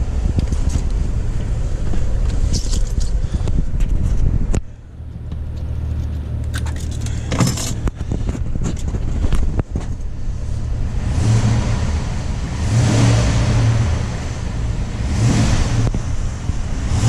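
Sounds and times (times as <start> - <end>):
engine humming: 0.0 - 17.0
clicks and rattles: 5.2 - 10.0.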